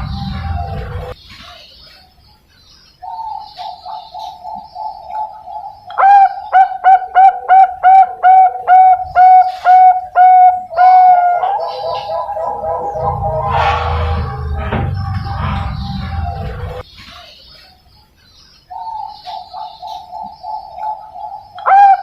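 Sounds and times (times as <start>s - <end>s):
dove cooing: 3.3s - 16.8s, 18.8s - 22.0s.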